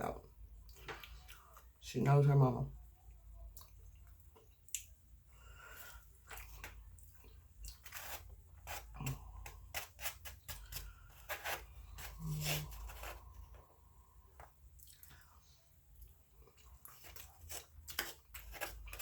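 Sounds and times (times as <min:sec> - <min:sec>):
person chewing and crunching: 0:05.6 - 0:15.4, 0:16.0 - 0:19.0.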